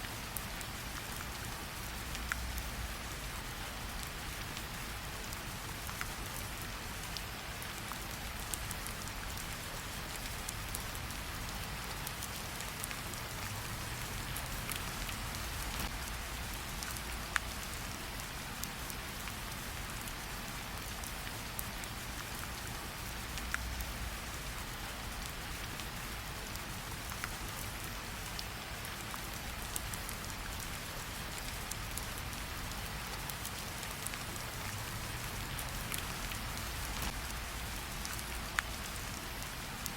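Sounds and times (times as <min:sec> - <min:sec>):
steady rain hissing: 0:00.0 - 0:39.9
campfire crackling and popping: 0:31.4 - 0:39.1.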